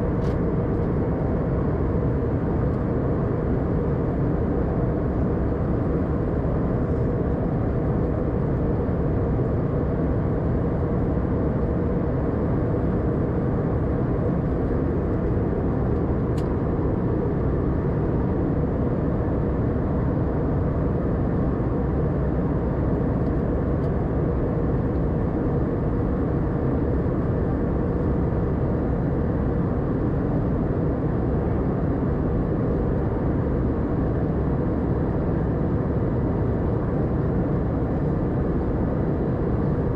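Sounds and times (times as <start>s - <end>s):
airliner cabin roar: 0.0s - 39.9s.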